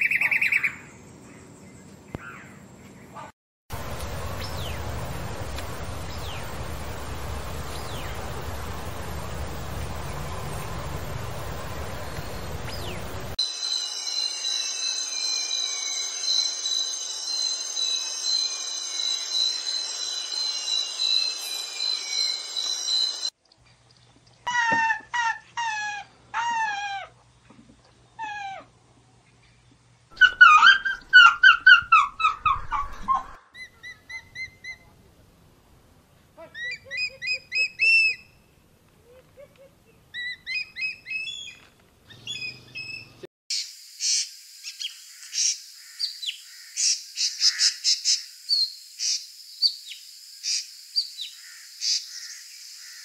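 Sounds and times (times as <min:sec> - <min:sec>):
steady hiss: 0:03.7 - 0:23.3
birds whistling calls: 0:30.2 - 0:34.9, 0:40.1 - 0:53.0.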